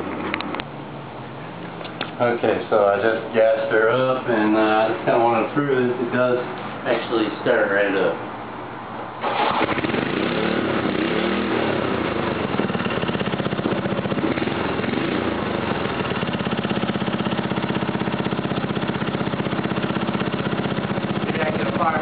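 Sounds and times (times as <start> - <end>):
small engine running: 9.2 - 22.0.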